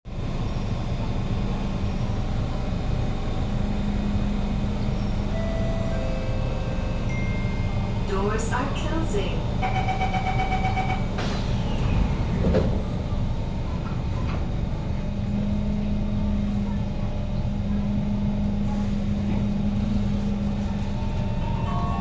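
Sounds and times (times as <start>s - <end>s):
train motor drone: 0.2s - 16.4s
train doors shutting with a knock: 9.6s - 14.6s.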